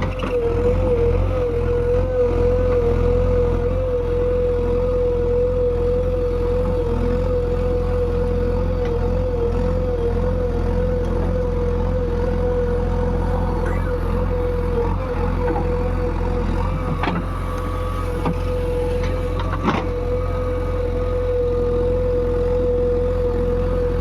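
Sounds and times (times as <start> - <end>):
excavator diesel engine running: 0.0 - 24.0
high whine: 12.7 - 19.3.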